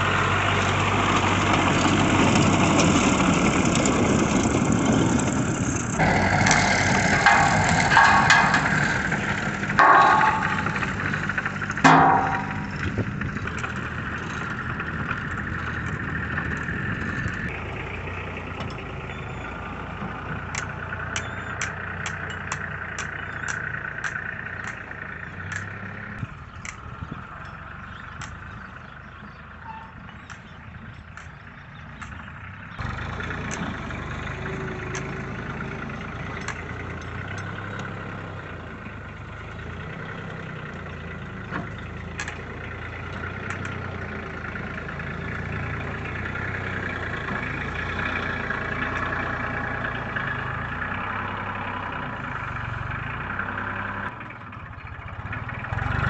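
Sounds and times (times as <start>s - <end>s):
tractor engine running: 0.0s - 56.0s
loud clattering: 6.0s - 17.5s
sharp evenly spaced ticks: 20.5s - 25.8s.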